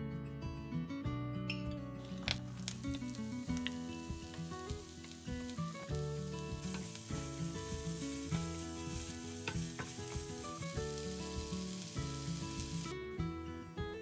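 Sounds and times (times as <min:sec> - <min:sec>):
onion sizzling in oil: 0:02.1 - 0:12.9.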